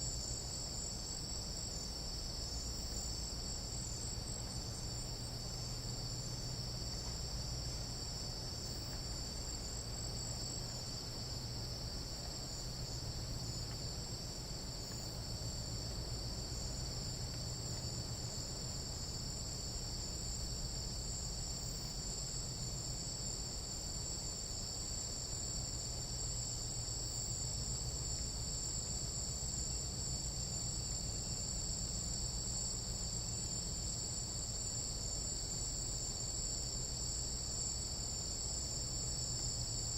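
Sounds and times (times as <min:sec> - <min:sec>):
night insects trilling: 0:00.0 - 0:39.9.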